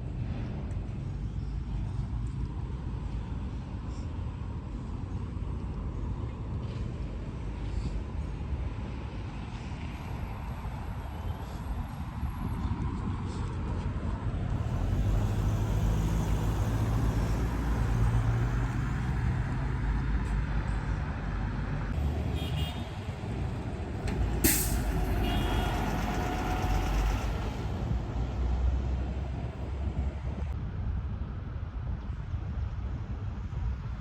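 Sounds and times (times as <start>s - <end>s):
heavy engine running: 14.4s - 21.9s, 23.3s - 30.5s
air brake hiss: 24.4s - 26.5s.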